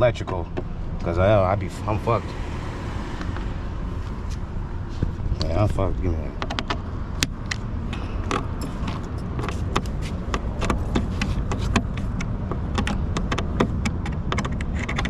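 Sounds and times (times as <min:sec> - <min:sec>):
steady low rumble: 0:00.0 - 0:14.3
sharp clicks and rattles of tool: 0:06.4 - 0:07.6, 0:08.2 - 0:15.0.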